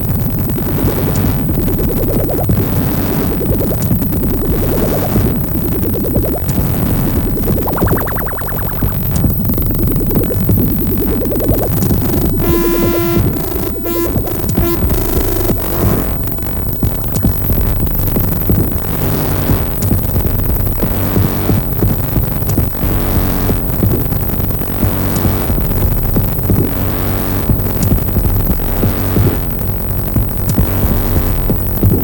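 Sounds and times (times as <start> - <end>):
buzzy held synth tone: 0.0 - 32.0
electronic synthesizer music: 0.5 - 32.0.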